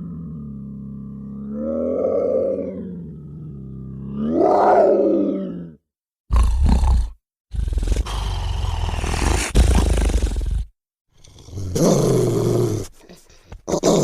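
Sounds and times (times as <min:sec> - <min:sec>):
creature roar: 0:00.0 - 0:06.7
creature growling: 0:00.0 - 0:14.0.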